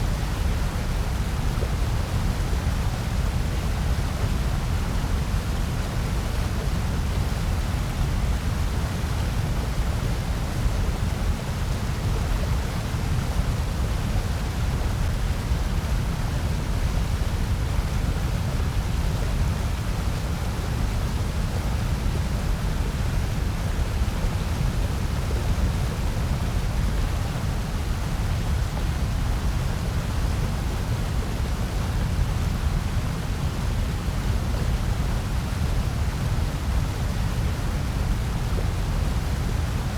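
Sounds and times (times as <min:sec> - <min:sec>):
white noise: 0:00.0 - 0:39.9.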